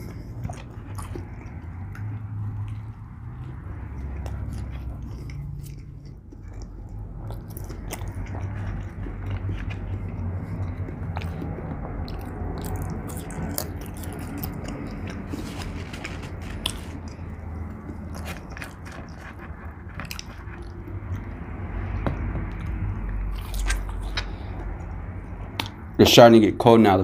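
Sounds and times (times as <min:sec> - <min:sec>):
person chewing food: 0:00.0 - 0:26.0
wet mouth clicks and smacks: 0:25.5 - 0:25.9.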